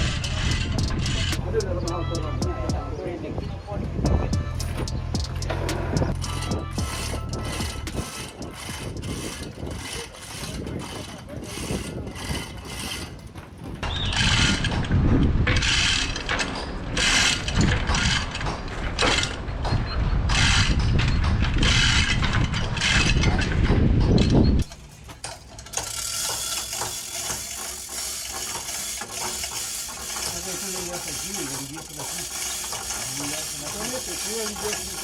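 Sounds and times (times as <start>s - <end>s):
chain hoist ratcheting clatter: 0.0s - 2.5s, 4.4s - 35.0s
low rumble: 0.0s - 8.0s.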